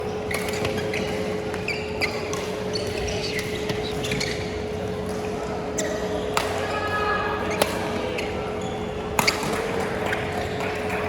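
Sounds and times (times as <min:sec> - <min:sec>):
shoes squeaking on floor: 0:00.1 - 0:04.9, 0:05.7 - 0:06.3, 0:08.0 - 0:09.6
rackets hitting shuttlecock: 0:05.0 - 0:06.7, 0:07.5 - 0:08.1, 0:09.1 - 0:11.0.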